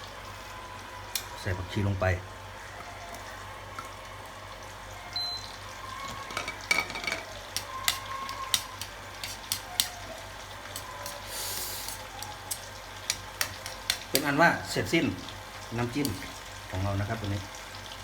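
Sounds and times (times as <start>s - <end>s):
spoon clinking against bowl: 6.2s - 9.9s.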